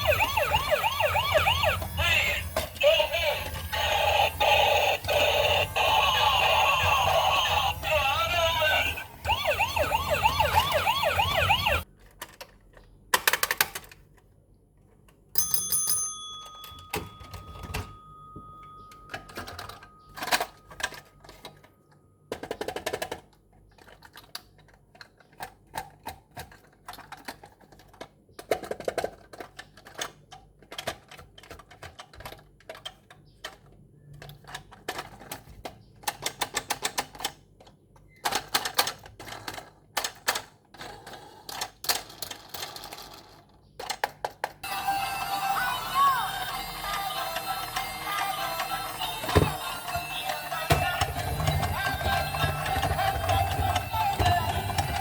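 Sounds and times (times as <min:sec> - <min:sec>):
toy electronic sung tune: 0:00.0 - 0:11.8, 0:44.6 - 0:55.0
plastic toy parts clicking: 0:11.9 - 0:14.4, 0:18.9 - 0:21.7, 0:22.3 - 0:44.6.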